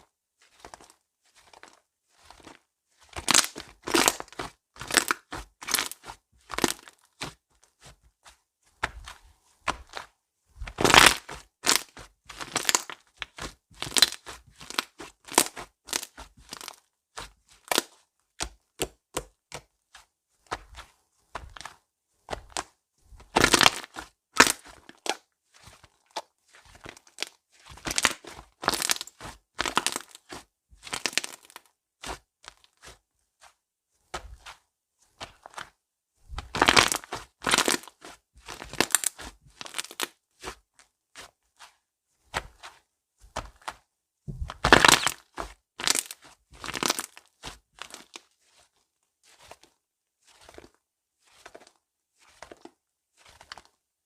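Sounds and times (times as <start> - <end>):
slime crackling and popping: 23.4 - 24.7, 27.1 - 30.2, 38.5 - 40.1, 44.4 - 47.2.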